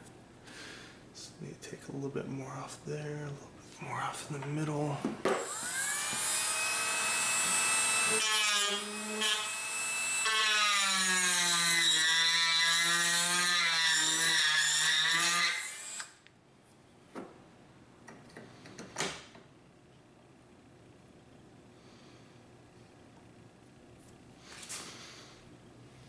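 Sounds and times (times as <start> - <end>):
rotary tool grinding wood: 5.4 - 16.2.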